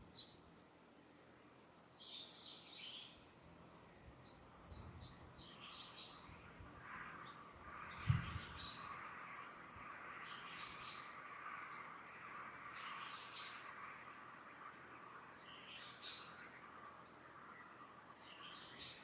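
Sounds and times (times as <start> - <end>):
leaves rustling in breeze: 0.0 - 19.0
distant birds trilling: 5.1 - 19.0.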